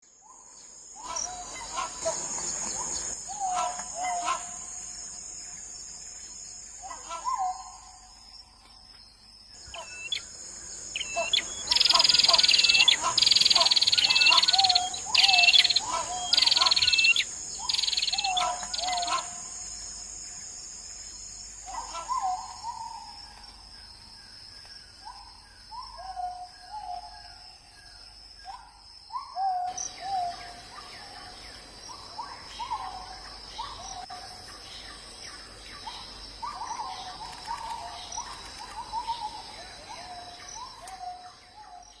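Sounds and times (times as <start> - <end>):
high insect drone: 0.1 - 25.9, 26.5 - 42.0
hornbill calling: 9.7 - 19.5.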